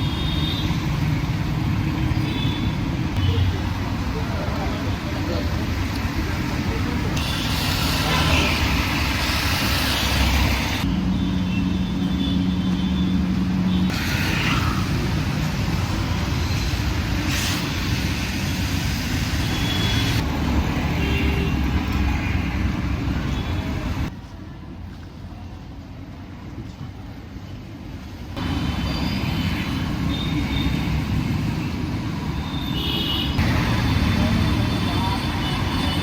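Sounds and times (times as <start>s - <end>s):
tyre hiss on wet road: 7.1s - 10.8s, 14.0s - 20.2s
vehicle engines running: 33.4s - 36.0s.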